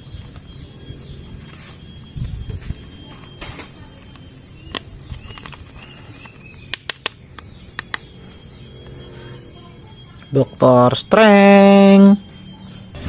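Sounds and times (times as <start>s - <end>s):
high-pitched buzz: 0.0s - 13.0s.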